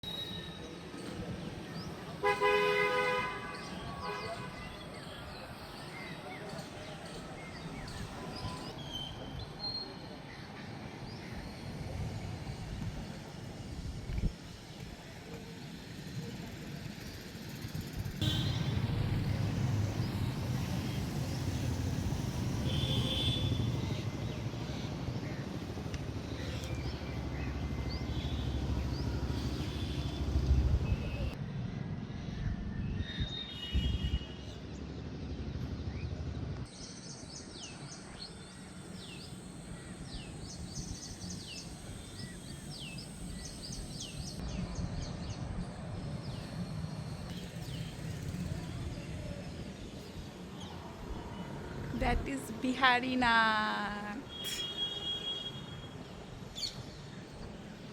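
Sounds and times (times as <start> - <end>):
birds chirping: 18.2 - 31.4.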